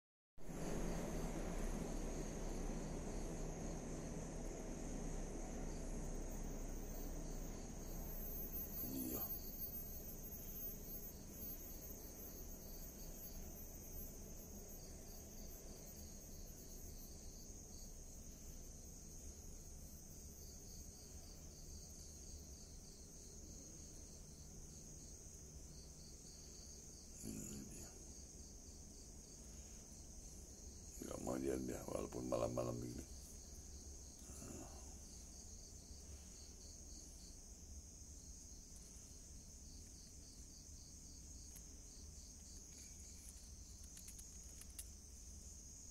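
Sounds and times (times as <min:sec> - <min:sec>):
low rumbling noise: 0:00.4 - 0:10.3
crickets chirping: 0:00.4 - 0:45.9.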